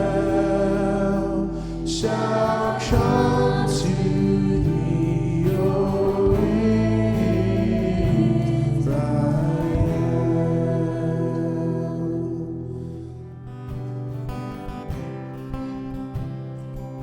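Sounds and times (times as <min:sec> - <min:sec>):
church band playing worship music: 0:00.0 - 0:12.8
voices singing: 0:00.0 - 0:13.0.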